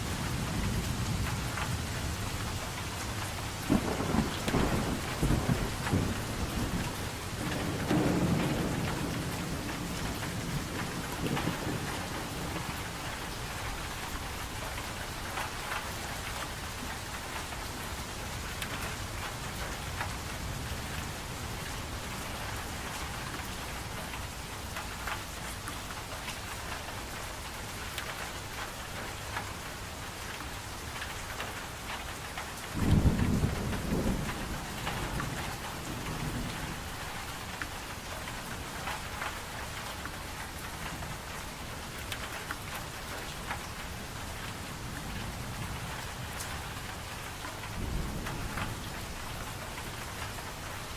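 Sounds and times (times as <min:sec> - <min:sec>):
steady rain falling: 0:00.0 - 0:50.9
thunder rumble: 0:03.4 - 0:14.1, 0:32.8 - 0:37.6.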